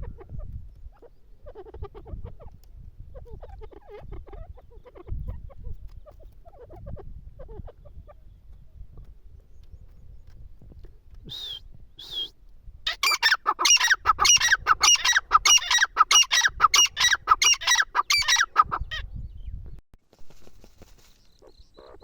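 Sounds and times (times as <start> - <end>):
francolin calling: 12.9 - 18.9.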